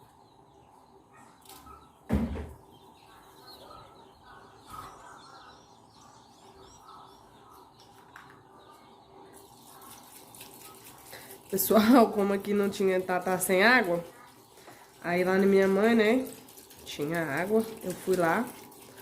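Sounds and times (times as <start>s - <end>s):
faint birds chirping: 0.0s - 19.0s
thump: 2.1s - 2.6s.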